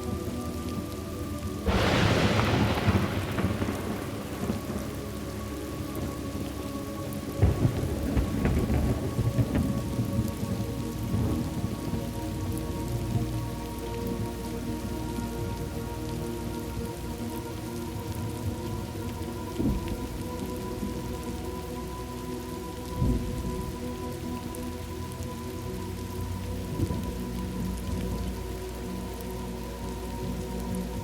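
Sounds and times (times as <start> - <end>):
steady rain: 0.0 - 31.0
thunder: 1.6 - 6.7, 7.3 - 12.1.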